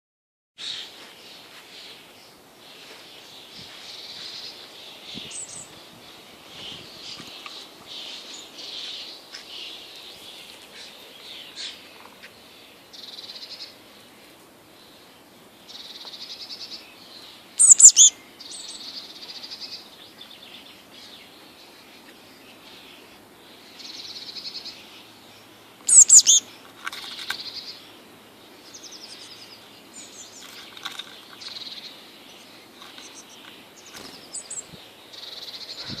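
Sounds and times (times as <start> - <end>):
small birds chirping: 0.6 - 36.0
loud sharp bird calls: 17.6 - 19.9, 25.5 - 27.9.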